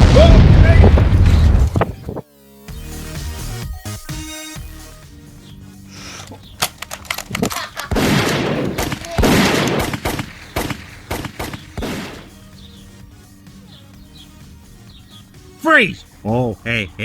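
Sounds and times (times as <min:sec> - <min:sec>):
gunshots: 0:07.3 - 0:12.5
bursts of gunfire: 0:07.9 - 0:12.4.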